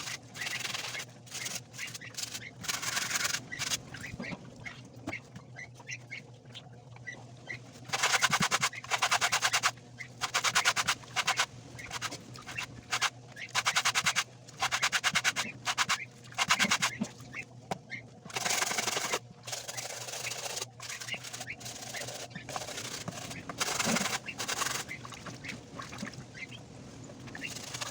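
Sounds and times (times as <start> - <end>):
brush scrubbing a sneaker: 7.9 - 17.0, 18.4 - 24.9, 27.4 - 27.9.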